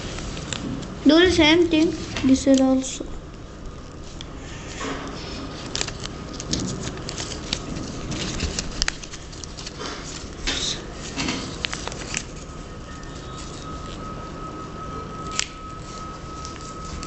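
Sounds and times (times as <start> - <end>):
paper rustling and crinkling: 0.0 - 3.1, 4.0 - 14.2, 15.1 - 17.0
paper crackles and taps: 0.1 - 2.9, 4.2 - 14.0.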